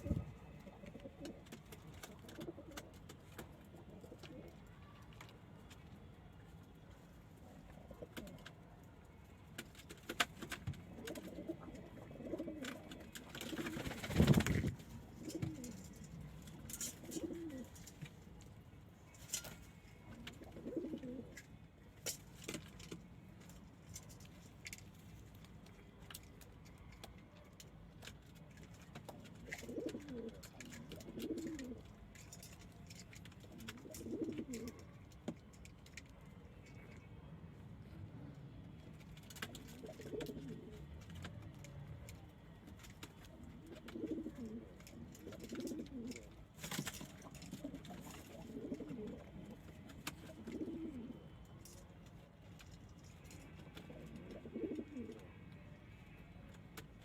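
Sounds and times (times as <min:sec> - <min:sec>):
pigeons cooing: 0:00.0 - 0:03.0, 0:10.9 - 0:16.1, 0:16.8 - 0:17.8, 0:20.2 - 0:21.4, 0:29.4 - 0:31.9, 0:33.5 - 0:34.9, 0:39.6 - 0:41.1, 0:43.4 - 0:46.4, 0:47.2 - 0:51.4, 0:53.7 - 0:55.4.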